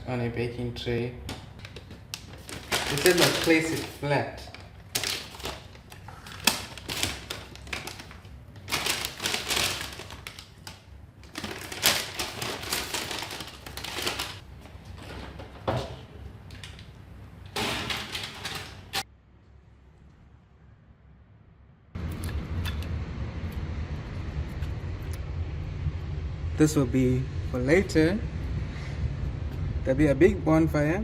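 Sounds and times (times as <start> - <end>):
cooking bag crinkling: 1.7 - 14.4
bag clattering against baking tray: 2.4 - 4.0.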